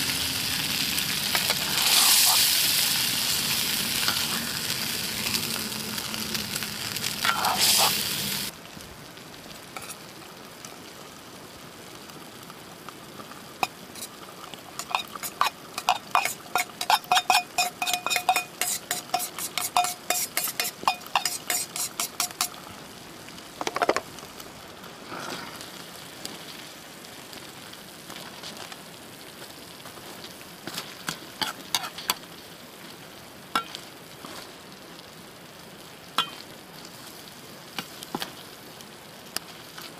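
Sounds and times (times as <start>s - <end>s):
food sizzling in a wok: 0.0s - 39.9s
metal utensil striking wok: 7.2s - 7.9s, 14.8s - 22.6s, 36.2s - 36.4s.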